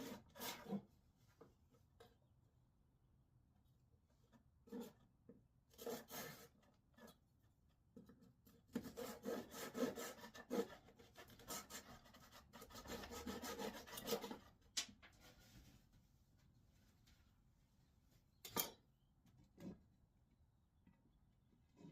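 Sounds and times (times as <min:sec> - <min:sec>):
wood scraped by hand: 0:00.0 - 0:00.9, 0:05.8 - 0:07.1, 0:08.8 - 0:14.5.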